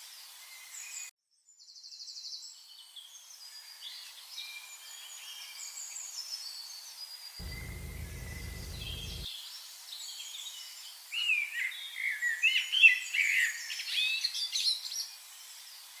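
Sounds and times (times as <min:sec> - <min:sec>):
low rumble: 0:07.4 - 0:09.3
songbirds chirping and warbling: 0:07.4 - 0:09.3.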